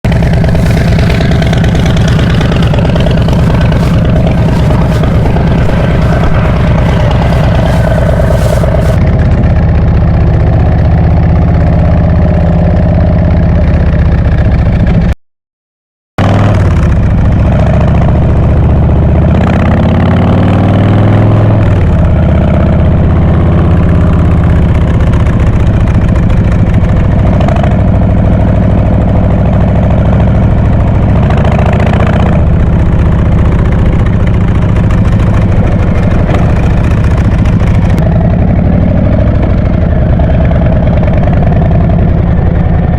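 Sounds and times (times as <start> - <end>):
motorcycle engine idling: 0.1 - 15.1, 21.7 - 42.9.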